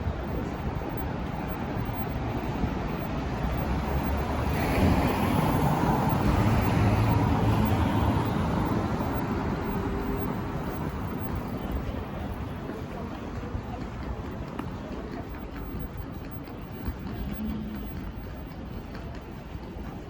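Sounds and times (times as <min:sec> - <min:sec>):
road vehicle passing by: 0:01.8 - 0:12.8.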